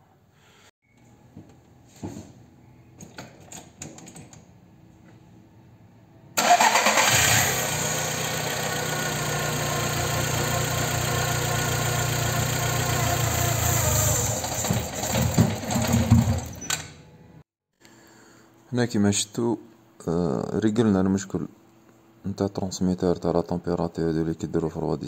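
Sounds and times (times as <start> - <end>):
car engine starting and idling: 6.4 - 16.5.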